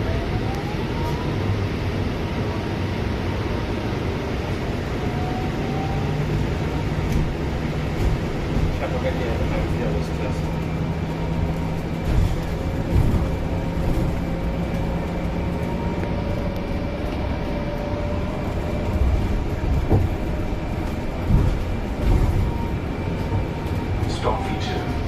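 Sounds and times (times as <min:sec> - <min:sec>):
bus engine and road rumble: 0:00.0 - 0:25.0
knocks and rattles over bumps: 0:06.8 - 0:17.5, 0:18.4 - 0:25.0.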